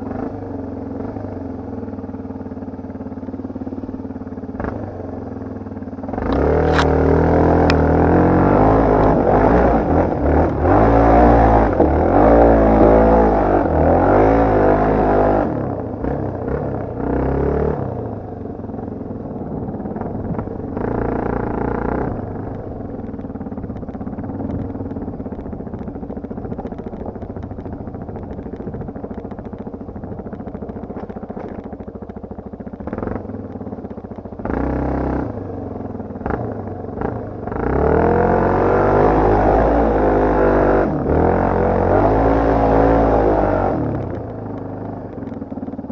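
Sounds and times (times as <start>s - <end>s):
dirt bike engine revving: 6.1s - 31.7s, 32.8s - 33.3s, 34.4s - 35.4s, 36.2s - 44.2s
sharp clicks: 6.3s - 7.0s, 22.4s - 32.2s.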